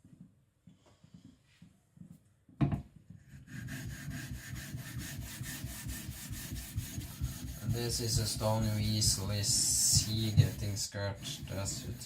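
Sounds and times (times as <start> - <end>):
blade rubbing on wet whetstone: 3.5 - 12.0.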